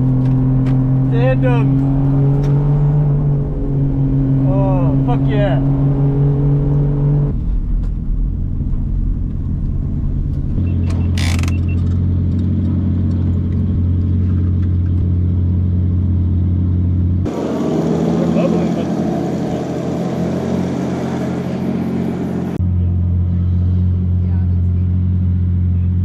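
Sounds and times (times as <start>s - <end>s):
car engine at held revs: 0.0s - 7.4s, 10.8s - 22.6s.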